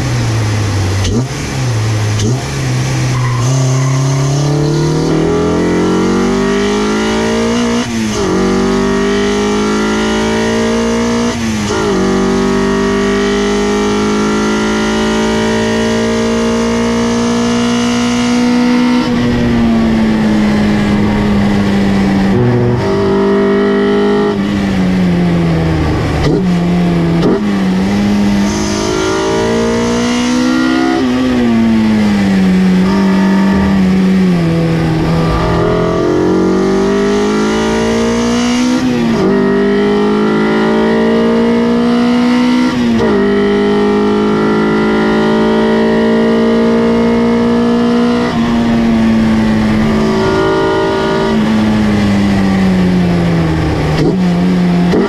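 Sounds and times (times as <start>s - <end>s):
car engine revving through gears: 0.0s - 55.0s.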